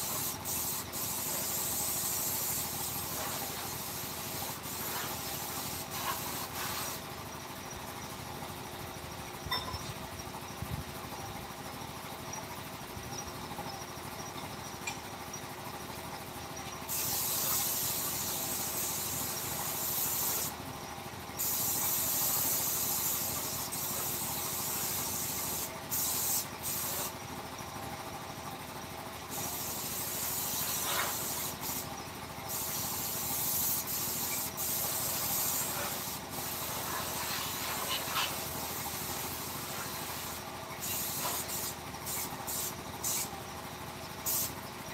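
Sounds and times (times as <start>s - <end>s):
compressed-air gun hissing: 0.0s - 7.1s, 16.9s - 20.6s, 21.4s - 27.2s, 29.3s - 31.9s, 32.5s - 43.3s, 44.2s - 44.6s
workshop background: 0.0s - 44.9s.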